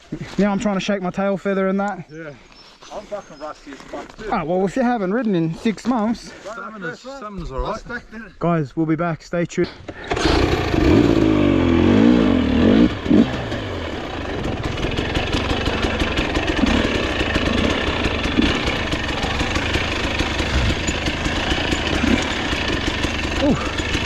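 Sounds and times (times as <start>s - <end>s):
dirt bike engines revving: 9.8s - 24.0s.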